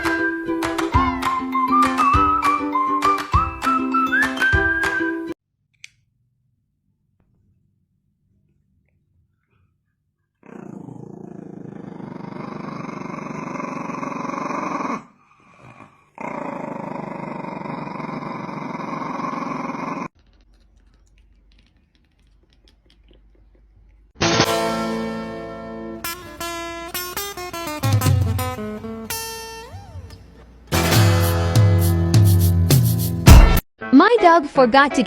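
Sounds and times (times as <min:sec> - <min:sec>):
animal growling: 0:10.4 - 0:23.6
guitar music: 0:24.2 - 0:34.0.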